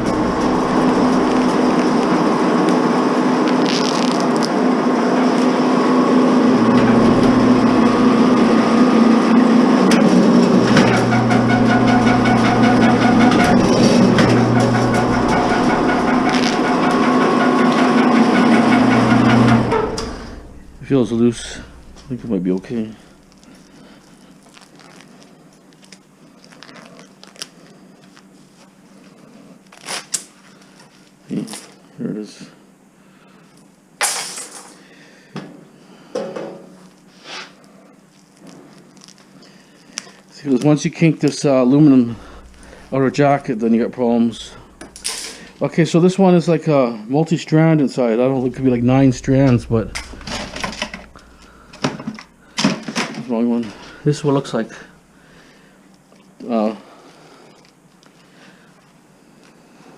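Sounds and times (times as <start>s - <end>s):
wire-stripping machine humming: 0.0s - 23.7s, 41.7s - 45.7s, 48.2s - 55.2s.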